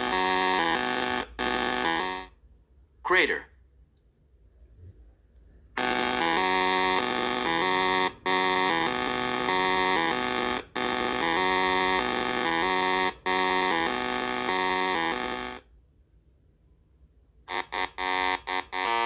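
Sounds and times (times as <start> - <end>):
buzzy synthesizer melody: 0.0 - 2.3, 5.8 - 15.6.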